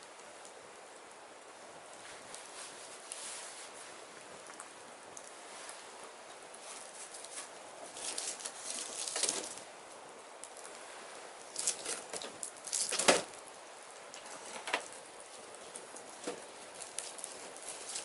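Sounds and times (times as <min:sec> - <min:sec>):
firewood crackling: 0:00.0 - 0:18.0
steady hiss: 0:00.0 - 0:18.0.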